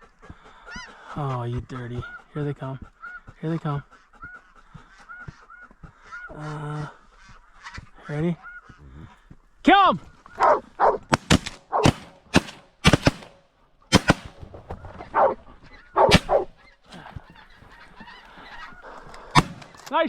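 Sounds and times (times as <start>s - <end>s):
geese honking: 0.0s - 11.1s, 13.9s - 20.0s
shotgun shots: 11.1s - 15.4s, 16.0s - 16.5s, 19.2s - 20.0s.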